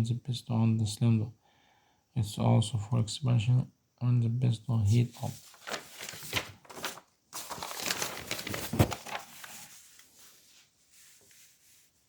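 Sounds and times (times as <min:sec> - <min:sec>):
rustling and scraping: 0:05.0 - 0:12.0.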